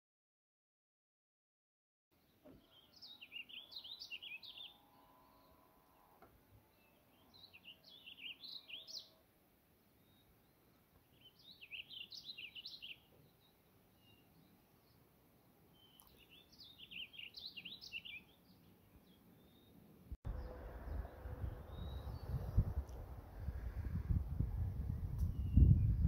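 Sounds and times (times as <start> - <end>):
songbird chirping: 2.2 - 23.9, 24.5 - 26.0
low rumbling noise: 20.2 - 26.0.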